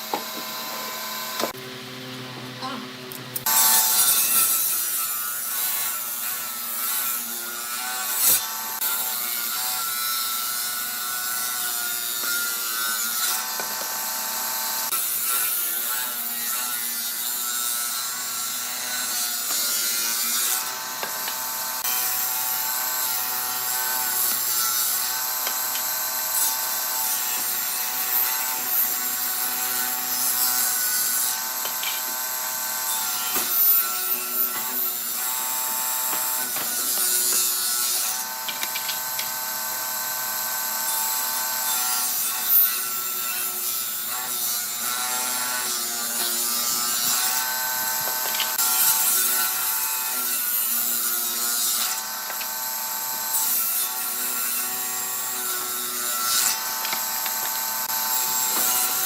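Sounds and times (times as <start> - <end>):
tool rasping wood: 3.4 - 59.0.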